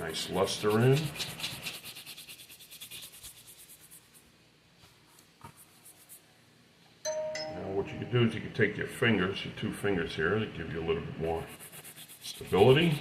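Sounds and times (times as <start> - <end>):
brush buffing leather: 0.1 - 4.2, 11.4 - 13.0.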